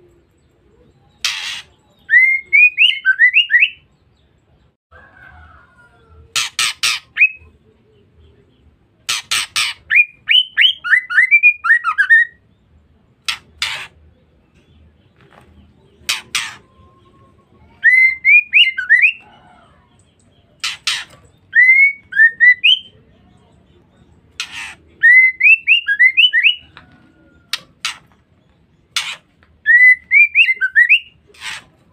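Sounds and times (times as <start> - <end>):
bird harsh rasping notes: 1.1 - 3.9, 6.3 - 7.5, 9.0 - 12.4, 13.2 - 14.5, 15.9 - 19.4, 20.5 - 23.0, 24.2 - 31.9.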